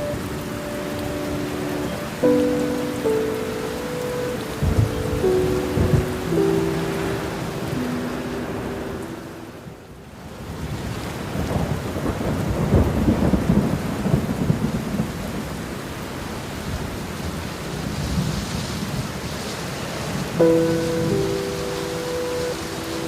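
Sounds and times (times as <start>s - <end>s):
held music notes: 0.0s - 10.0s, 20.4s - 23.0s
steady rain: 0.0s - 23.0s
rolling thunder: 4.6s - 8.0s, 10.5s - 15.6s.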